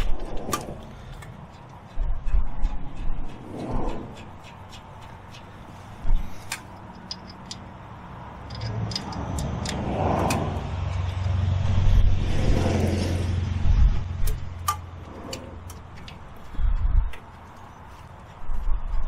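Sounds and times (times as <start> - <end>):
metallic tool clicks: 6.5 - 7.8, 8.4 - 11.4
vehicle driving past: 8.0 - 15.7.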